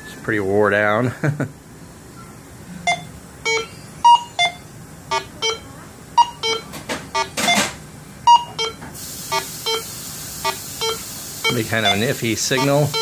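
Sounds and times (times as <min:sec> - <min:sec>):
metal detector beeps: 0:02.9 - 0:05.6, 0:06.2 - 0:06.6, 0:08.3 - 0:13.0.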